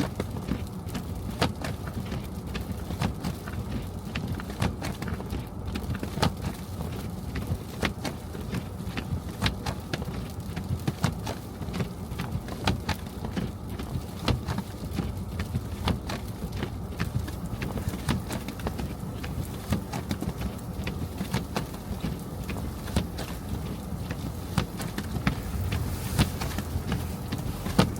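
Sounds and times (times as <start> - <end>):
car road and engine rumble: 0.0 - 27.9
ice pellets ticking on car: 0.0 - 27.9.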